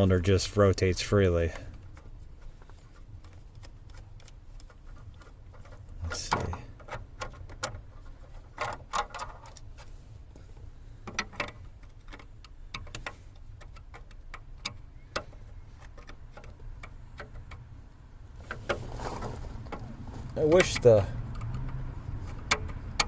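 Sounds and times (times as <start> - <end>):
hand tool clicking on screws: 11.1 - 17.6.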